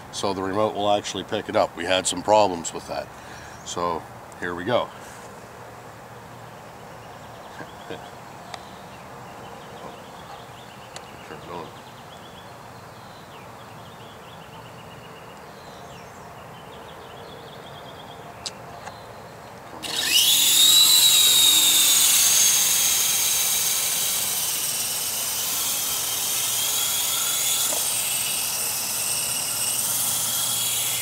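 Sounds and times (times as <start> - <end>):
helicopter motor whining: 19.8 - 31.0.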